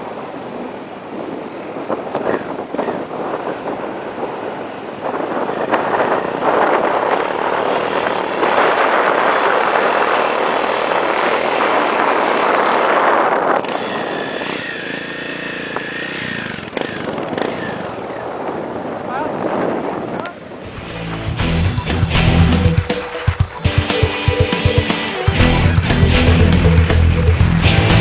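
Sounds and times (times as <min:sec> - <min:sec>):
motorcycle engine running: 0:05.6 - 0:18.9, 0:20.6 - 0:28.0.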